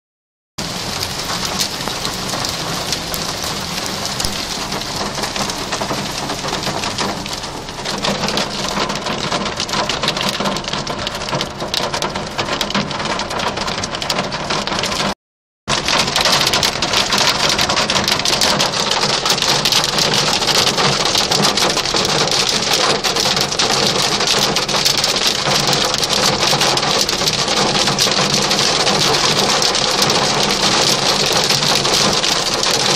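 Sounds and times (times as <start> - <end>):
heavy rain on a car: 0.6 - 32.9.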